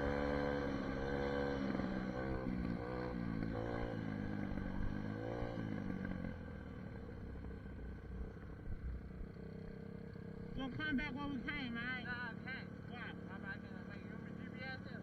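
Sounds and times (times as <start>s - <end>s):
dirt bike engine revving: 0.0s - 6.4s.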